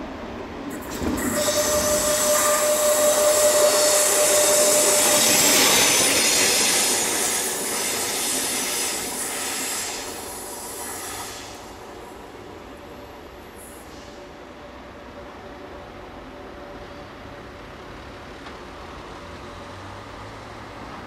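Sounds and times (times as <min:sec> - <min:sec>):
train rushing past: 0:00.0 - 0:14.6
steady high tone: 0:01.2 - 0:07.2.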